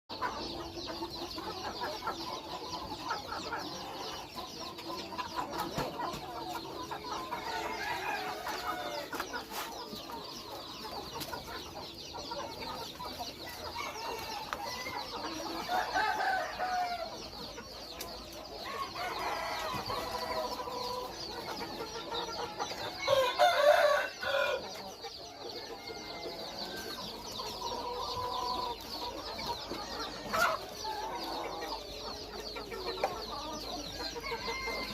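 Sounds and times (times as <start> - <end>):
chickens clucking: 0.1 - 34.9
rooster crowing: 23.0 - 24.6, 34.2 - 34.9.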